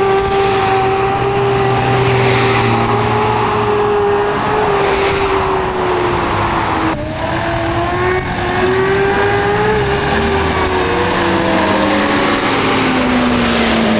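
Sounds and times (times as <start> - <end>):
motorcycle engine at high revs: 0.0 - 13.9.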